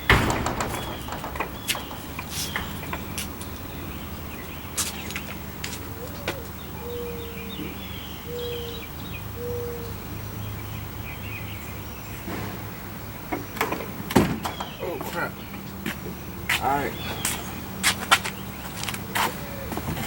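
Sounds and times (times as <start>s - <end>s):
low cooing bird call: 5.9s - 10.2s.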